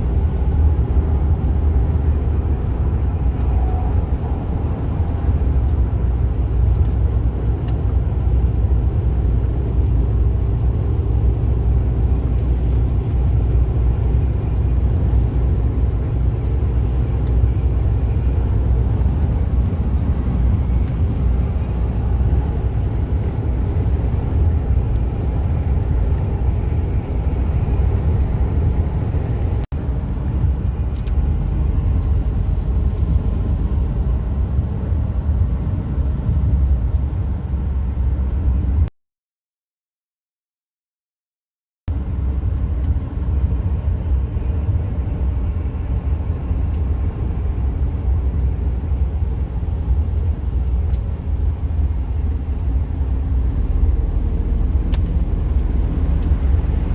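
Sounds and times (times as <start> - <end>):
truck engine and road rumble: 0.0 - 38.9, 41.9 - 56.9.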